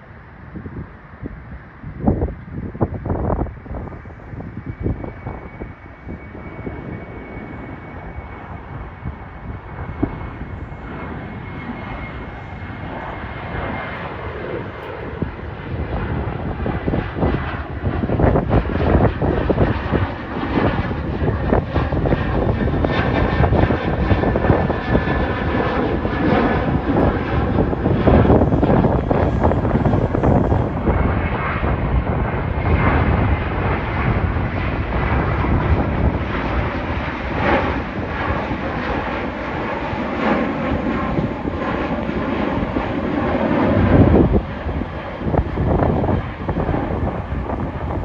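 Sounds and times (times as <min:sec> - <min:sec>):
jet engine roar: 0:00.0 - 0:48.0
crackling rumble: 0:08.9 - 0:48.0
thin steady whine: 0:25.0 - 0:31.7.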